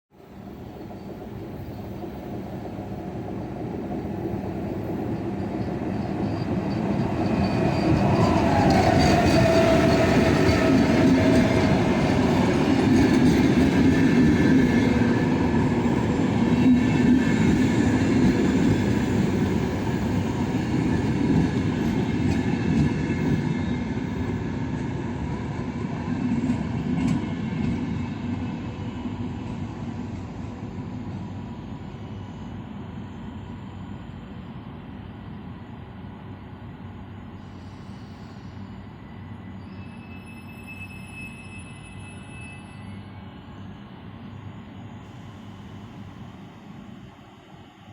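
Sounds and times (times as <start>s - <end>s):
train wheels rumbling: 0.5s - 32.0s
train whine dropping in pitch: 5.2s - 14.0s.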